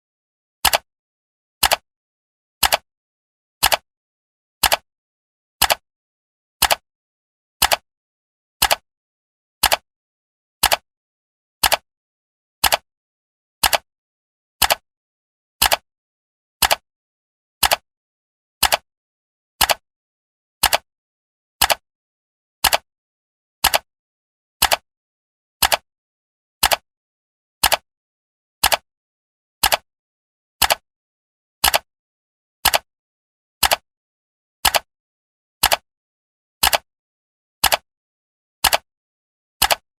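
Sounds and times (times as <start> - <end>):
clock ticks: 0.6 - 0.8, 1.6 - 1.8, 2.6 - 2.8, 3.6 - 3.8, 4.6 - 4.8, 5.6 - 5.8, 6.6 - 6.8, 7.6 - 7.8, 8.6 - 8.8, 9.6 - 9.8, 10.6 - 10.8, 11.6 - 11.8, 12.6 - 12.8, 13.6 - 13.9, 14.6 - 14.8, 15.6 - 15.8, 16.6 - 16.8, 17.6 - 17.8, 18.6 - 18.8, 19.6 - 19.8, 20.6 - 20.8, 21.6 - 21.8, 22.6 - 22.8, 23.6 - 23.9, 24.6 - 24.8, 25.6 - 25.8, 26.6 - 26.8, 27.6 - 27.8, 28.6 - 28.8, 29.6 - 29.8, 30.6 - 30.8, 31.6 - 31.9, 32.6 - 32.9, 33.6 - 33.8, 34.6 - 34.9, 35.6 - 35.8, 36.6 - 36.9, 37.6 - 37.8, 38.6 - 38.9, 39.6 - 39.8.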